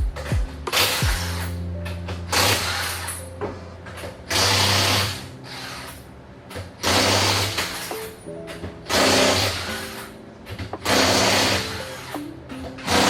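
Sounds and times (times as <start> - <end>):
impact wrench bursts: 6.8 - 8.1, 8.9 - 10.1, 10.8 - 12.1.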